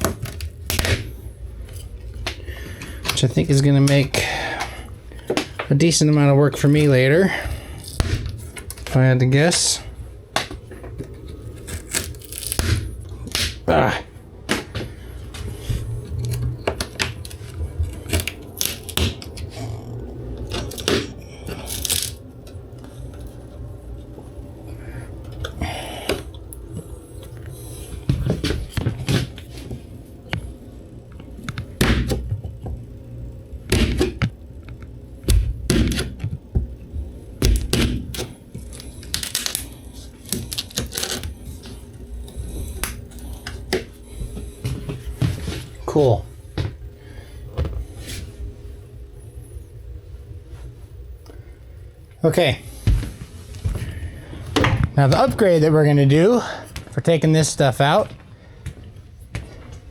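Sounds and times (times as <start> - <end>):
steady low hum: 0.0 - 59.9
scraping and tearing: 11.1 - 13.6, 38.6 - 41.8.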